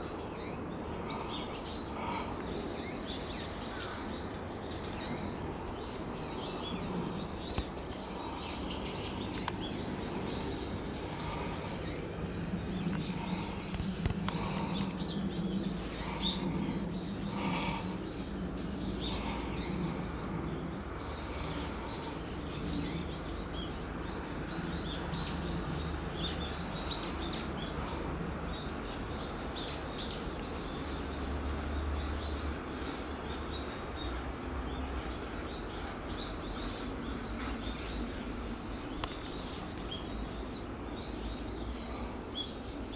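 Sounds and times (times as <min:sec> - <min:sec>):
steady low rumble: 0:00.0 - 0:29.6
small birds chirping: 0:00.0 - 0:42.9.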